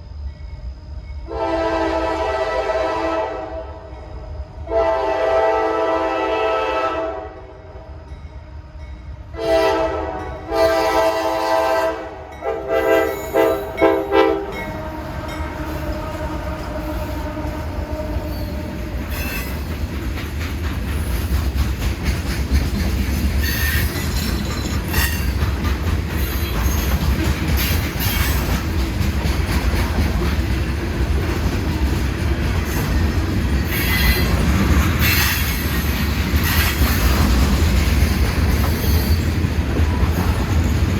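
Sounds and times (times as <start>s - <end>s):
train wheels rumbling on rail: 0.0s - 40.9s
locomotive air horn blasts: 1.3s - 3.8s, 4.6s - 7.5s, 9.4s - 18.8s
high wheel squeal: 14.6s - 19.7s, 23.4s - 25.4s, 32.8s - 34.4s, 38.6s - 39.4s.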